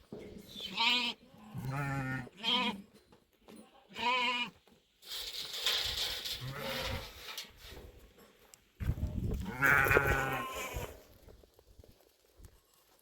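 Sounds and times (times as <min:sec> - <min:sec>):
livestock bleating: 0:00.6 - 0:02.9, 0:03.8 - 0:04.6, 0:06.4 - 0:07.1, 0:09.4 - 0:10.9.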